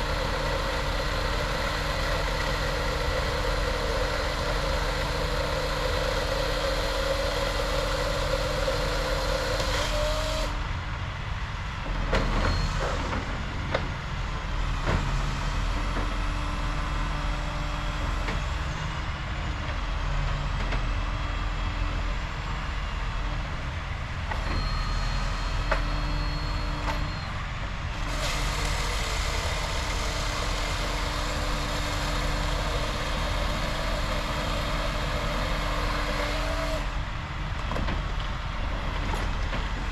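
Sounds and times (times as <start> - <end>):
truck engine running: 0.0 - 12.0, 25.2 - 39.9.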